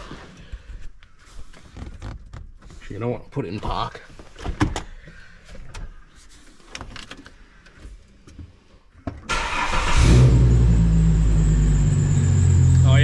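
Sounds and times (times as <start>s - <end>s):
car engine starting and idling: 9.3s - 13.0s.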